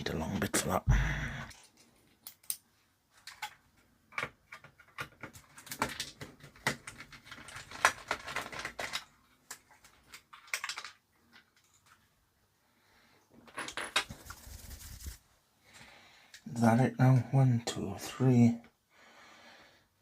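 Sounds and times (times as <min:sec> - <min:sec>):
screwdriver bits clicking and clattering: 0:10.0 - 0:11.7.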